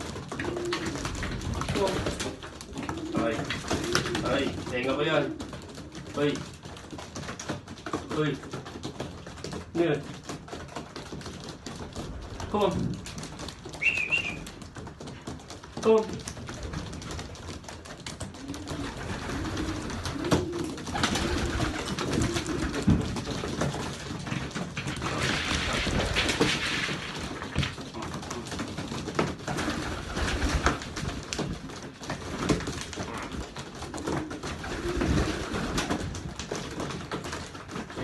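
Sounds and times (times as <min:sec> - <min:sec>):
pigeons cooing: 0:00.0 - 0:06.5, 0:13.6 - 0:15.2, 0:17.1 - 0:26.5, 0:32.4 - 0:36.1
clicks and scuffs of birds moving: 0:00.0 - 0:38.0.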